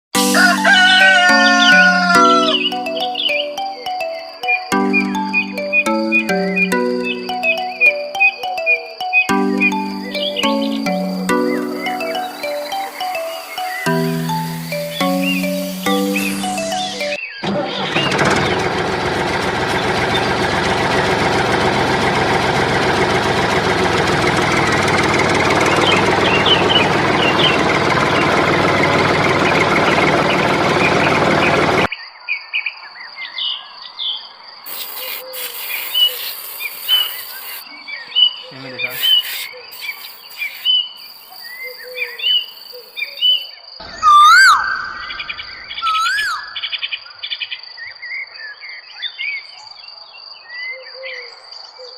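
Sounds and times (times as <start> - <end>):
crickets trilling: 6.3 - 15.2, 33.0 - 46.4
bird chirps: 33.0 - 46.9
rising and falling whistles: 45.8 - 46.6.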